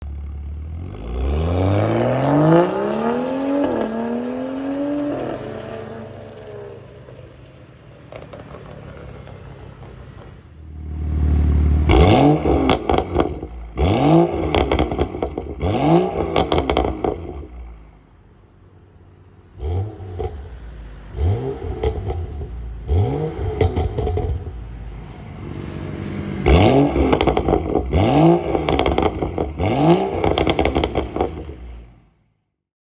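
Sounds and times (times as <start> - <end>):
car engine accelerating and revving: 0.1 - 7.4, 10.7 - 17.8, 19.4 - 32.0
exhaust crackles and pops: 8.0 - 10.6, 11.9 - 17.6, 20.0 - 24.7, 26.4 - 31.9.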